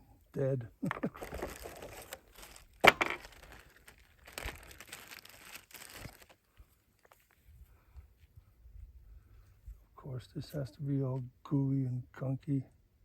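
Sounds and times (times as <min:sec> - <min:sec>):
crinkling rustling handling: 0:00.9 - 0:07.5.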